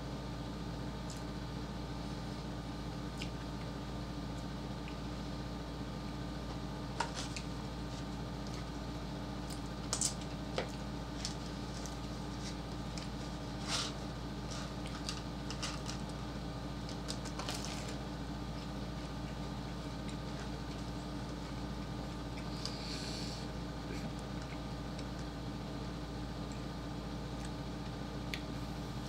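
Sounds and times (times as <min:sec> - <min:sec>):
biting crisp pie crust: 0:06.9 - 0:22.8.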